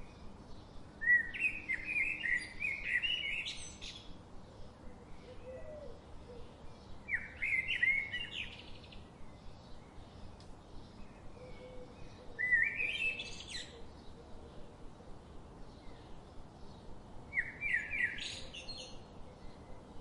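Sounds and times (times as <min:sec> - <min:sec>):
songbird singing: 0:00.0 - 0:20.0
faint bird calls: 0:05.1 - 0:08.6, 0:11.3 - 0:14.8.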